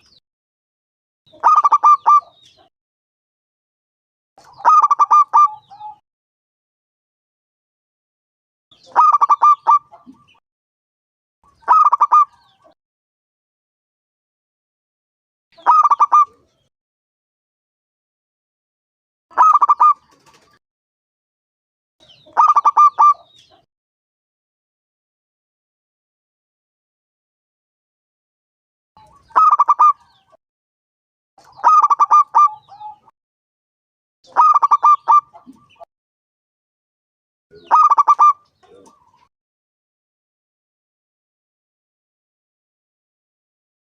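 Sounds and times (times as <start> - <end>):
dove cooing: 4.6 - 6.0, 22.3 - 23.3, 29.0 - 30.0, 31.6 - 33.1, 34.3 - 35.8, 37.6 - 39.1.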